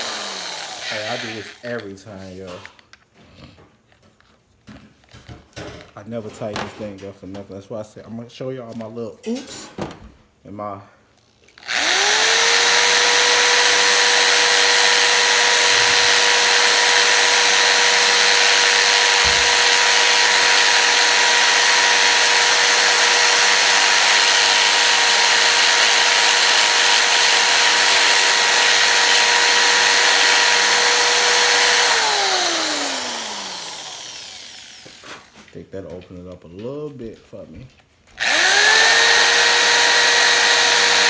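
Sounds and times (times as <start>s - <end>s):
electric drill running: 0.0s - 1.9s, 11.4s - 35.4s, 38.2s - 41.0s.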